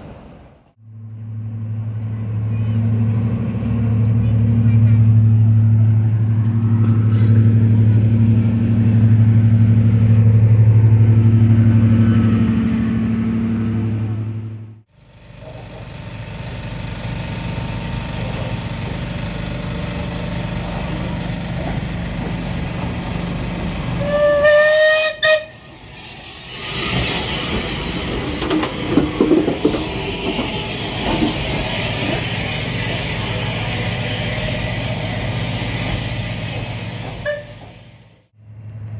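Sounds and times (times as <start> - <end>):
train rumbling: 0.0 - 38.9
loud low drone: 0.9 - 14.9
train clattering on rails: 1.8 - 14.5, 15.3 - 38.2
train whistle: 24.0 - 25.7, 37.2 - 37.7.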